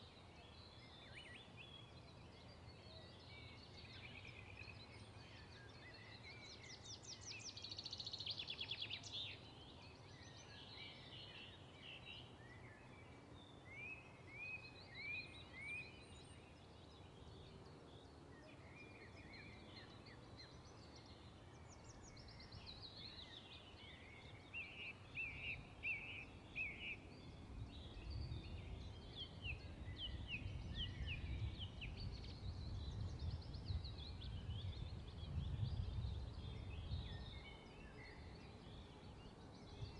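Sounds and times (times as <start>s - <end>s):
faint birdsong: 0.0s - 39.9s.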